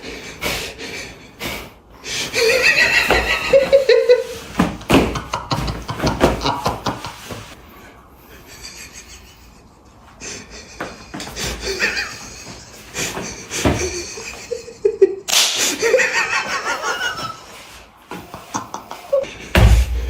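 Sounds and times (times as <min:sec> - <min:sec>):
people laughing: 0:02.4 - 0:07.6, 0:08.4 - 0:17.6.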